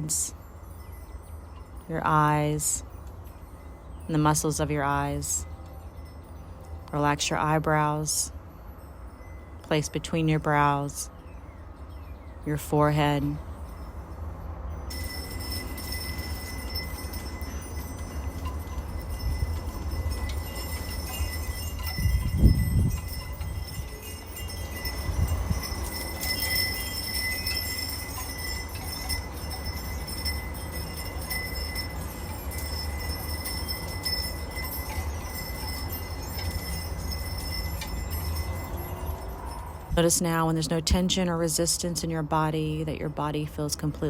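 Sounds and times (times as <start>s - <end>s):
wind chimes ringing: 0.0s - 44.0s
wind rumble on microphone: 11.6s - 41.1s.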